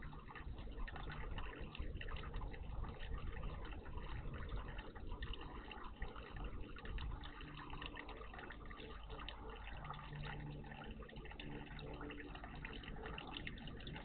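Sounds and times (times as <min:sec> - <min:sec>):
water splashing in a bird bath: 0:00.0 - 0:14.0.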